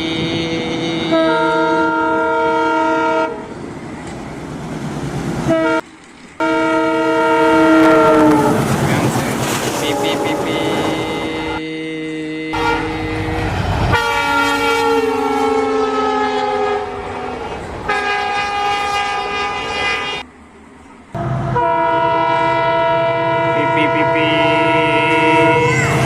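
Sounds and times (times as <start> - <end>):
toy train horn sound effect: 0.0 - 3.4, 9.8 - 16.9, 21.6 - 26.0.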